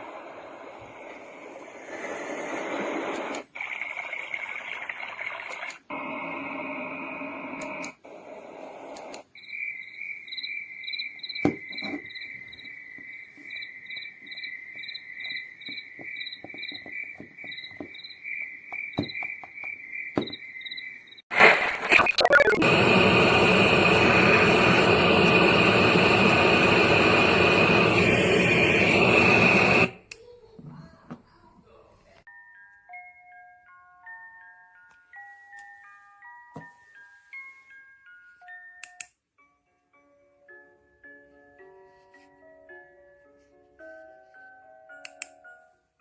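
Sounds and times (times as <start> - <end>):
recorded cricket chirping: 9.3 - 21.2
white noise tracks: 21.3 - 30.0.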